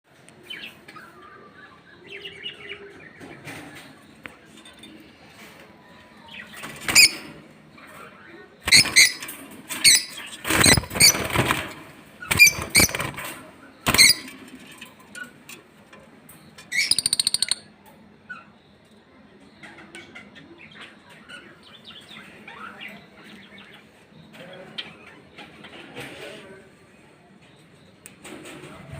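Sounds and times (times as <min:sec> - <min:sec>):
lovebirds calling shrilly: 0:08.6 - 0:11.6, 0:12.2 - 0:13.2, 0:13.8 - 0:14.3, 0:16.7 - 0:17.7
bird chattering trill: 0:16.8 - 0:17.6.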